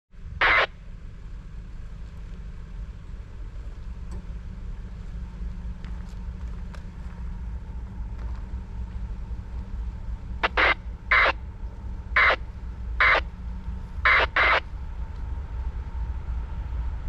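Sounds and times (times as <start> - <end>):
diesel engines rumbling: 0.1 - 17.0
loud burst of noise: 0.4 - 0.8, 10.4 - 11.4, 12.1 - 13.3, 14.0 - 14.7.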